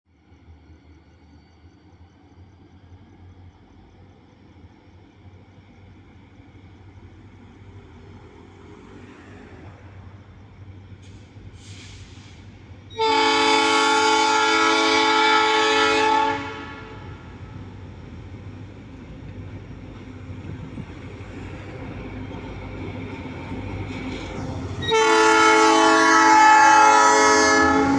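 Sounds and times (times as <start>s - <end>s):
diesel locomotive rumble: 1.8s - 27.9s
locomotive air horn: 12.9s - 17.3s, 24.8s - 27.9s.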